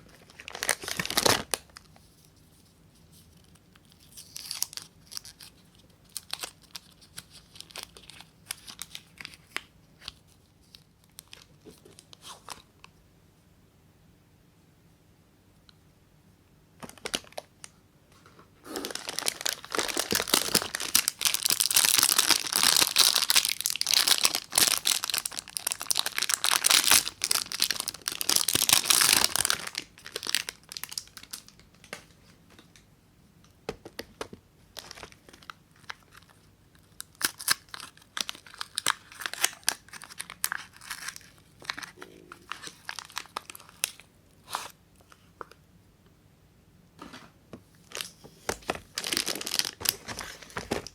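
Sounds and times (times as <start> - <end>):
wrapper tearing and crinkling: 0.2 - 1.9, 3.8 - 12.5, 18.7 - 31.8, 37.0 - 44.7, 47.9 - 50.9.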